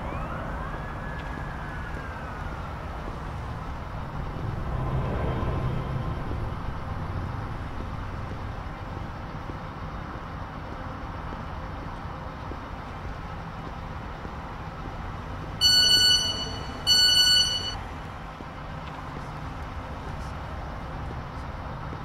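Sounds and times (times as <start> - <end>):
low rumble: 2.1 - 10.3
high electronic beeps: 15.6 - 17.8.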